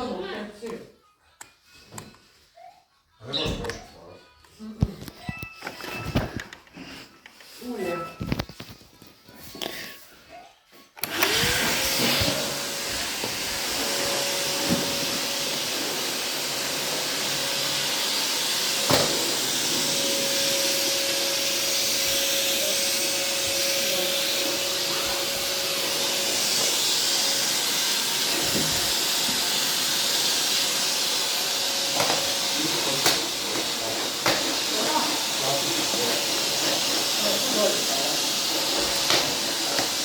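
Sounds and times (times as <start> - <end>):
vacuum cleaner motor running: 11.0 - 40.0.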